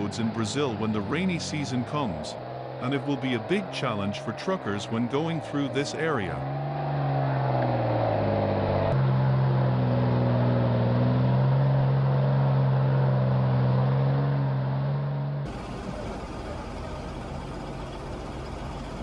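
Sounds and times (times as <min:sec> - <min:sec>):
truck engine droning: 0:00.0 - 0:19.0.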